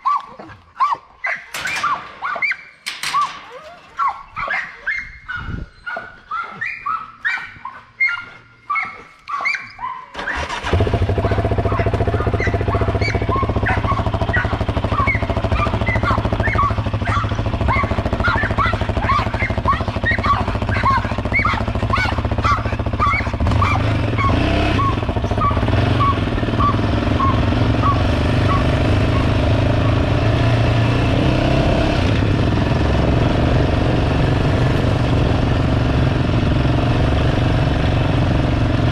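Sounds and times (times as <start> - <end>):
dog whimpering and yipping: 0.0 - 29.3
vehicle engine running: 10.4 - 38.9.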